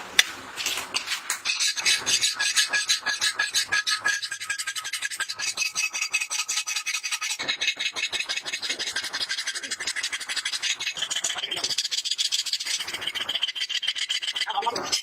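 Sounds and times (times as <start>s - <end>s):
steel scraping strokes: 0.0s - 11.8s.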